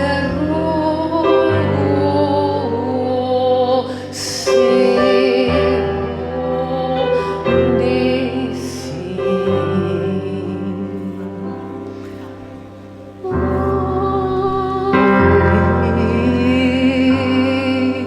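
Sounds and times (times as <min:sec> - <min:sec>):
person singing long notes: 0:00.0 - 0:12.0, 0:13.2 - 0:18.0
sustained keyboard chords: 0:00.0 - 0:18.0.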